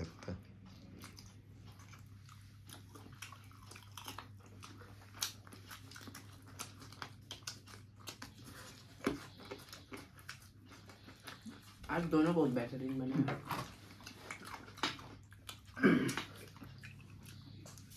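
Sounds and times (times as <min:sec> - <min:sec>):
low steady hum: 0:00.0 - 0:17.9
person chewing and smacking: 0:00.0 - 0:17.9
wet lip and teeth clicks: 0:00.7 - 0:11.9.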